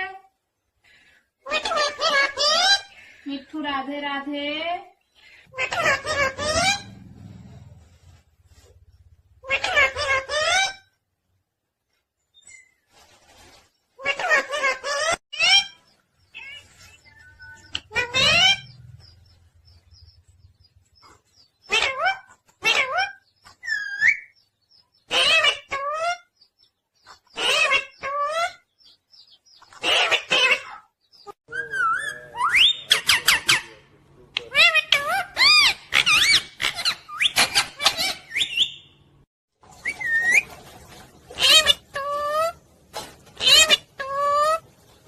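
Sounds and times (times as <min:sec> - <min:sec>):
parrot harsh calls: 0:05.4 - 0:07.0, 0:09.4 - 0:10.8, 0:14.0 - 0:18.8, 0:21.7 - 0:24.3, 0:25.1 - 0:26.2, 0:27.4 - 0:28.6, 0:29.8 - 0:30.9, 0:34.5 - 0:38.9, 0:41.4 - 0:42.6, 0:43.4 - 0:44.6.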